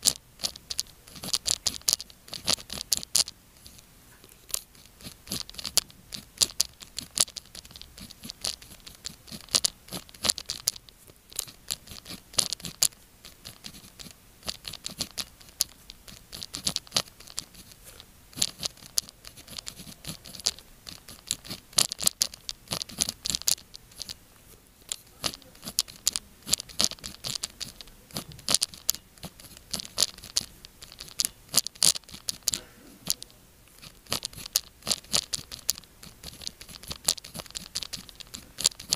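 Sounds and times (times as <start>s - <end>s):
pen nib tapping: 0.0s - 3.8s, 4.5s - 17.8s, 18.4s - 24.2s, 24.9s - 38.9s
pen scratching on paper: 4.6s - 10.7s, 11.4s - 24.2s, 25.0s - 38.9s.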